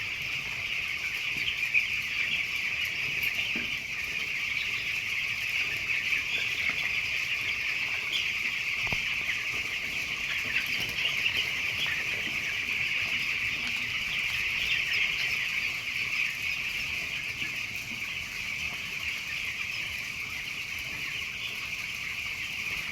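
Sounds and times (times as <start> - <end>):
chicks peeping in chorus: 0.0 - 22.9.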